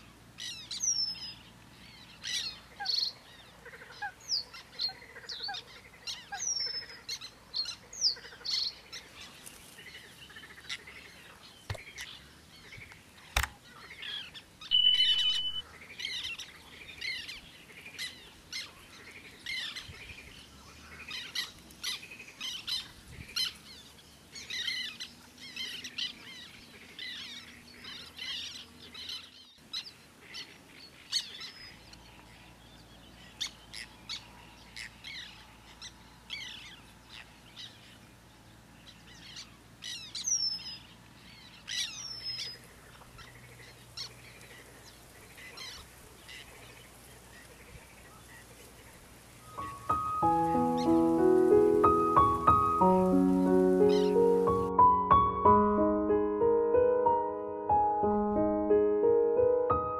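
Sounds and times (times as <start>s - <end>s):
short high bird chirps: 14.7s - 15.6s.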